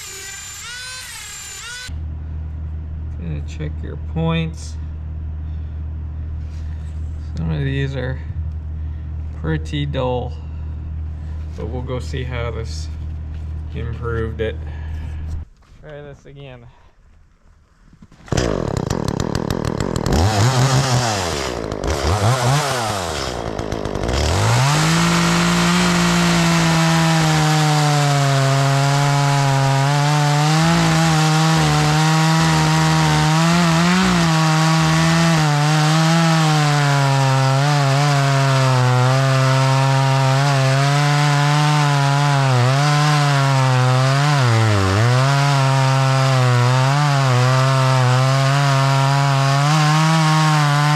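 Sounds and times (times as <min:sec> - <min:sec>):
chainsaw cutting through wood: 0:00.0 - 0:02.0, 0:18.1 - 0:50.9
chainsaw revving: 0:18.3 - 0:50.9.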